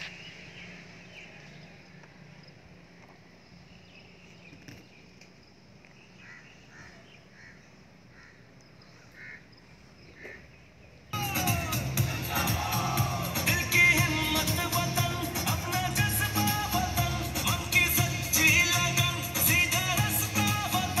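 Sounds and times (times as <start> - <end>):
bird calling faintly: 3.0 - 11.0.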